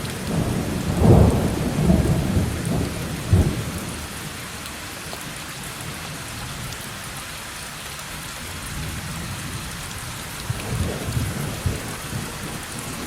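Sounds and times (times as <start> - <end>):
heavy rain hissing: 0.0 - 13.0
thunder rumble: 0.3 - 4.0.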